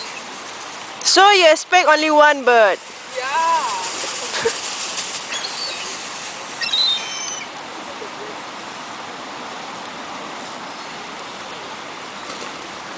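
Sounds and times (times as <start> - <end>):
steady rushing hiss: 0.0 - 12.9
high-pitched bird calls: 5.3 - 7.5.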